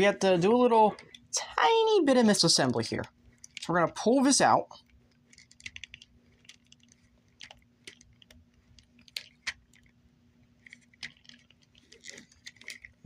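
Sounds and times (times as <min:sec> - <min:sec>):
plastic parts clicking and creaking: 0:00.6 - 0:01.3, 0:02.7 - 0:04.0, 0:04.8 - 0:13.0.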